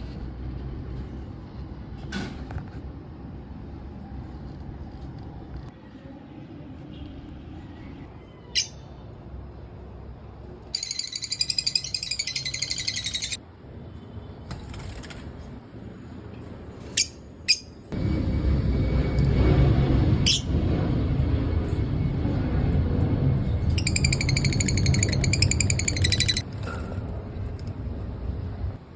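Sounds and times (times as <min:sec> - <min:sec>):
lovebirds chirping shrilly: 0:10.8 - 0:13.4, 0:23.8 - 0:26.4
rapid high-pitched bird chattering: 0:10.8 - 0:13.4, 0:23.8 - 0:26.4.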